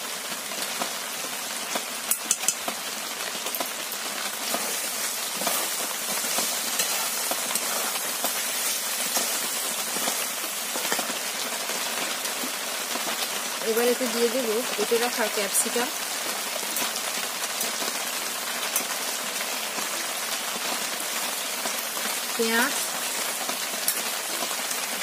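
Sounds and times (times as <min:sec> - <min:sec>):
food sizzling in oil: 0:00.0 - 0:25.0
metal spatula clicking on pan: 0:02.1 - 0:02.7.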